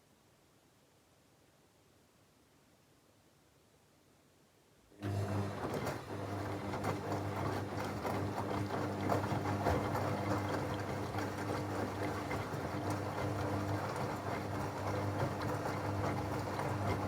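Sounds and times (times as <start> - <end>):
washing machine motor hum: 5.0 - 17.0
laundry sloshing in drum: 5.5 - 17.0.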